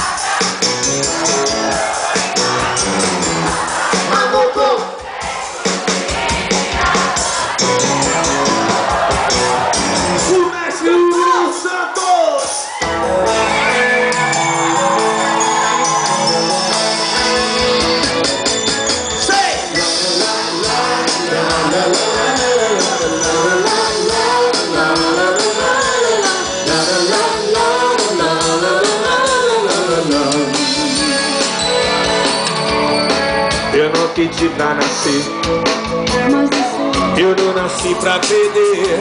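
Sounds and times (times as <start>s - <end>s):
live rock band playing: 0.0s - 4.2s, 5.1s - 10.5s, 12.7s - 39.0s.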